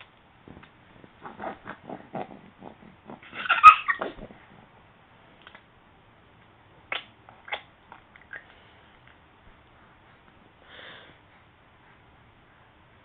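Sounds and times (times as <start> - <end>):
baby mouth-smacking: 6.9 - 8.5.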